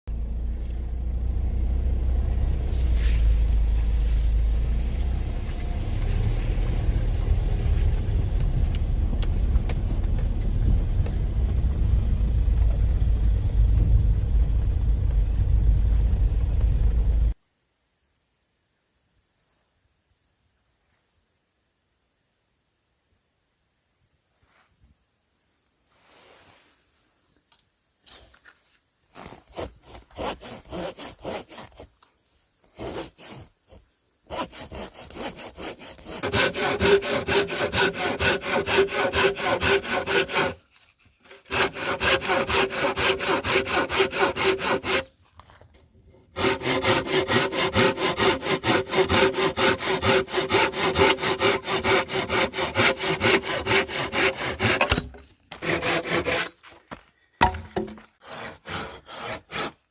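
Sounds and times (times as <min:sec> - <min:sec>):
hand saw cutting wood: 0:29.2 - 0:31.9, 0:32.6 - 0:45.6, 0:46.2 - 0:56.8, 0:57.4 - 0:59.9.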